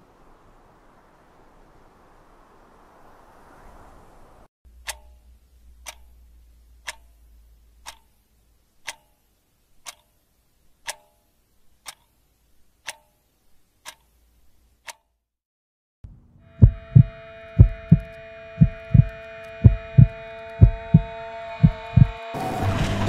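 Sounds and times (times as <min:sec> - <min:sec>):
clock ticking: 0:04.7 - 0:12.2, 0:12.8 - 0:14.2, 0:14.8 - 0:15.2, 0:16.6 - 0:22.1.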